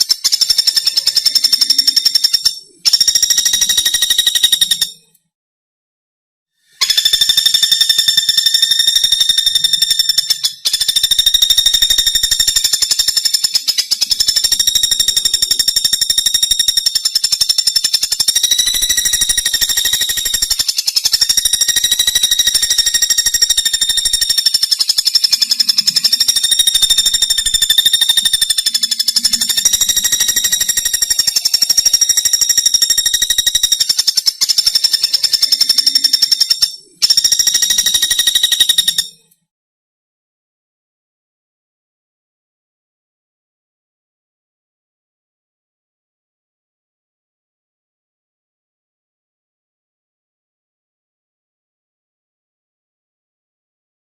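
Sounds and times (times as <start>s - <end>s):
woodpecker rattling trill: 0.0s - 5.2s, 6.7s - 39.4s.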